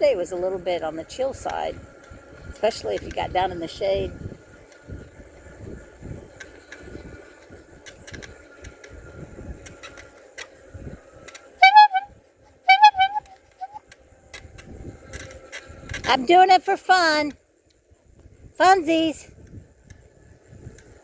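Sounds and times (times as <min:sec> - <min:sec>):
wind rumble on microphone: 0:00.0 - 0:16.4, 0:17.8 - 0:21.0
horn tooting: 0:11.6 - 0:12.1, 0:12.7 - 0:13.8.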